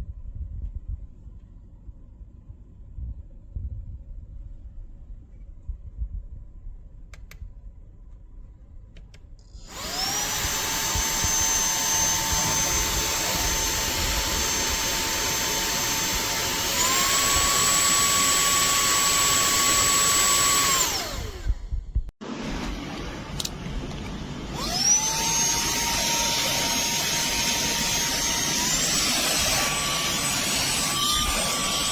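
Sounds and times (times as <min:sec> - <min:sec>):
handheld vacuum cleaner motor whine: 0:09.6 - 0:21.8, 0:22.4 - 0:31.9.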